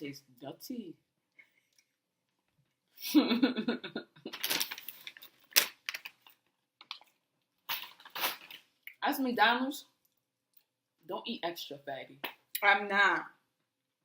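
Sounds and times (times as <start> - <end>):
paper packaging clicks and rustling: 4.3 - 7.2.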